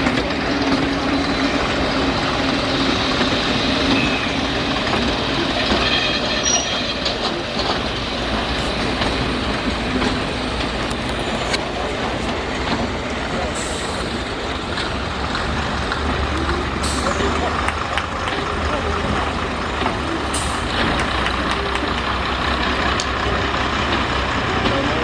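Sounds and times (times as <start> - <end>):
train rumbling and rattling on track: 0.0 - 25.0
wheels squealing: 0.0 - 25.0.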